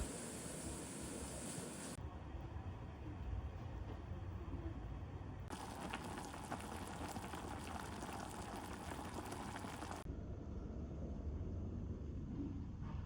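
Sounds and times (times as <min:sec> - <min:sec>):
broth bubbling at a simmer: 0:00.0 - 0:02.0, 0:05.5 - 0:10.1.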